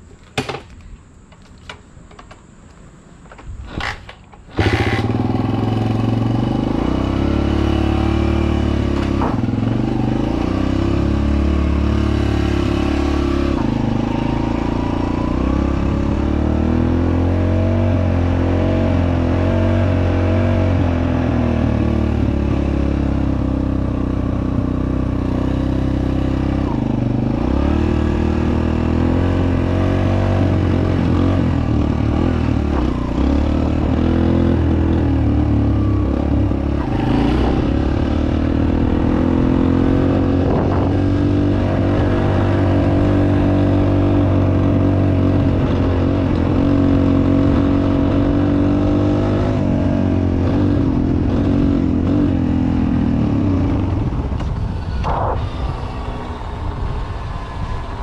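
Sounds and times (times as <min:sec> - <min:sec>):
engine starter clicks: 0:03.4 - 0:05.2
dirt bike engine running: 0:03.7 - 0:58.0.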